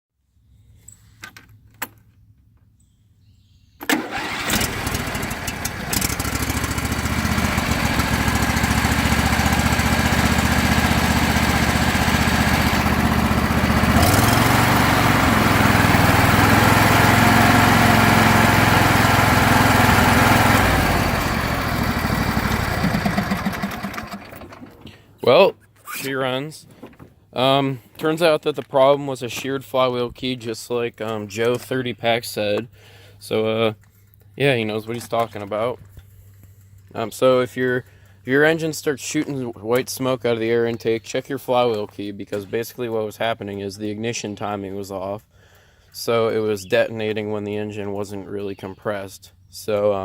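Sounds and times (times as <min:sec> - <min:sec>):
lawnmower engine running: 0:03.8 - 0:25.1.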